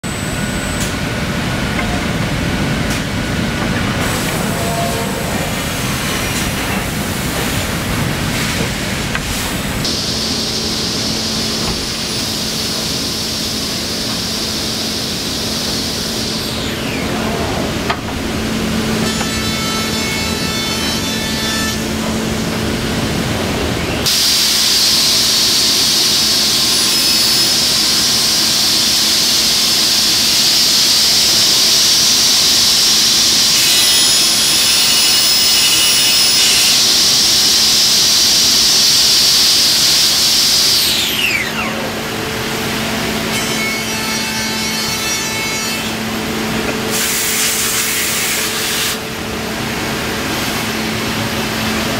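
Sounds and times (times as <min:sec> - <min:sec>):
high whine falling in pitch: 0:00.0 - 0:08.0, 0:09.0 - 0:19.0
machine hum: 0:00.0 - 0:36.4
router cutting wood: 0:09.8 - 0:22.4, 0:24.0 - 0:42.4.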